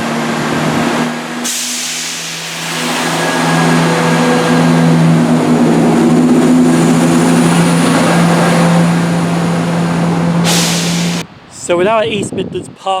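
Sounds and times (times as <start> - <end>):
train diesel engine drone: 0.0 - 11.4
short hiss: 1.4 - 2.8, 10.5 - 11.2.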